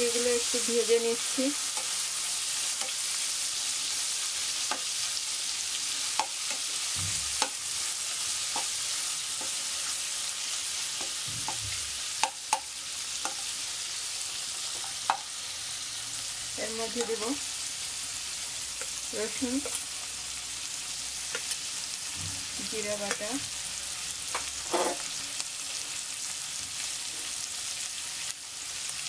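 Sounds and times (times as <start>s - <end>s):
prawns and onion sizzling in oil: 0.0s - 29.0s
metal spatula scraping pan: 24.6s - 25.1s.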